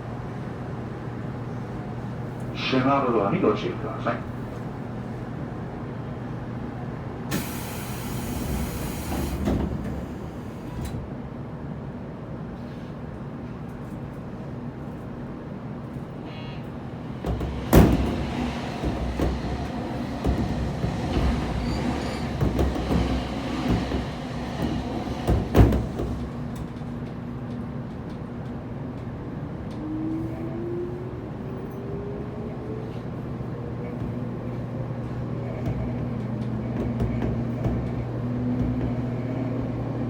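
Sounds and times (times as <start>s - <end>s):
electric train hum: 0.0s - 40.0s
wheels clunking over rail joints: 7.3s - 11.1s, 16.7s - 28.5s, 33.2s - 40.0s
wheel rattle: 17.1s - 26.9s.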